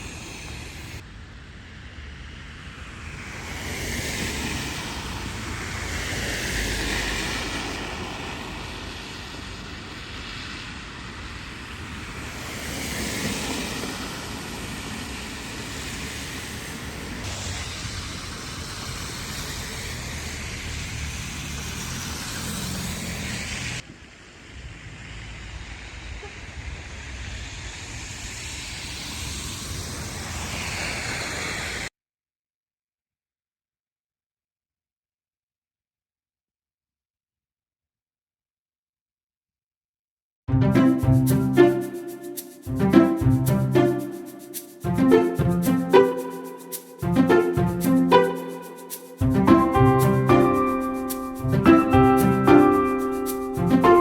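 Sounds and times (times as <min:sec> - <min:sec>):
wind: 0:00.0 - 0:31.9, 0:40.5 - 0:54.0
tyre hiss on slush: 0:11.6 - 0:23.8, 0:26.2 - 0:31.9.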